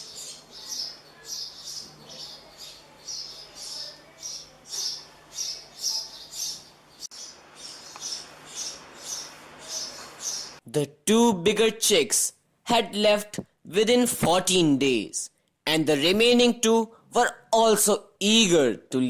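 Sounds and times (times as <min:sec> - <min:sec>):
faint steady hum: 0:00.0 - 0:10.6
nestlings chirping: 0:00.0 - 0:10.6.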